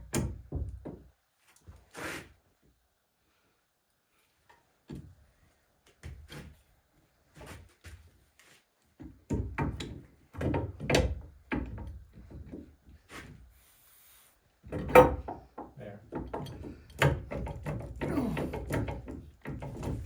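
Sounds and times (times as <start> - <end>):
steel parts knocking and clunking: 14.6 - 20.0.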